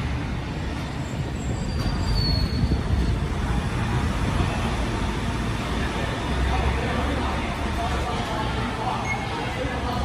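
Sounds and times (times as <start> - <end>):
train running with low rumble: 0.0 - 10.0.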